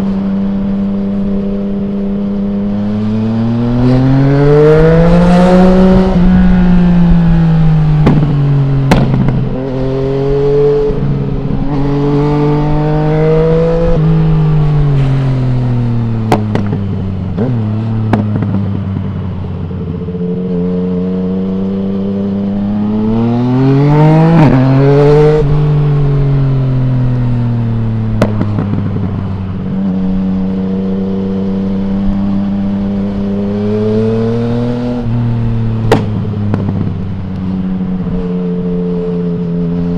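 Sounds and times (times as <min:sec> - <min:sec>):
motorcycle engine revving: 0:00.0 - 0:39.9
exhaust cracks: 0:08.0 - 0:09.6, 0:35.6 - 0:37.5.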